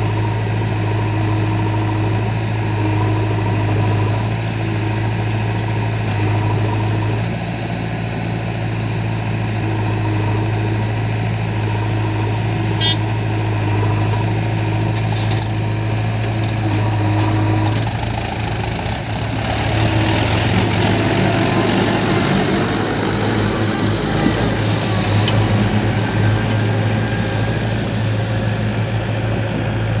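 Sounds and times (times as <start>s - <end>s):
heavy machinery diesel engine running: 0.0s - 30.0s.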